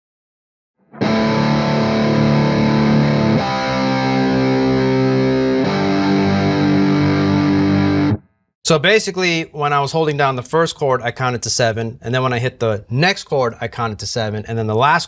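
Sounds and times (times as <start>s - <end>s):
distorted electric guitar chords: 0.9s - 8.3s.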